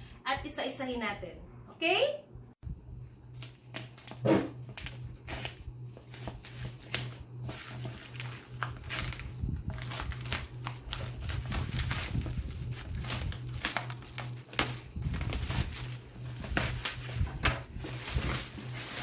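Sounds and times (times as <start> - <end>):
steady low hum: 0.0 - 19.0
packaging crinkling and rustling: 3.3 - 19.0.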